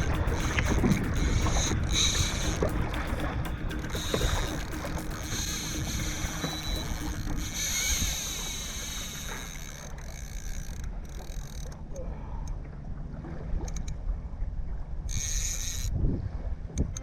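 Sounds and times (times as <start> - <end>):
wind rumbling: 0.0 - 9.8
electric motor humming: 0.0 - 10.8
water rumbling: 0.0 - 17.0.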